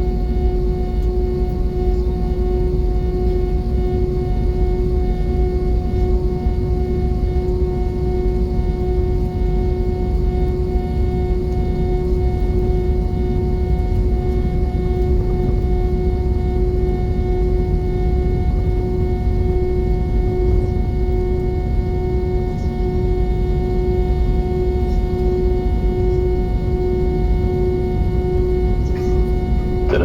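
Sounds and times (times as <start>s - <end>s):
jet engine cabin drone: 0.0s - 30.0s.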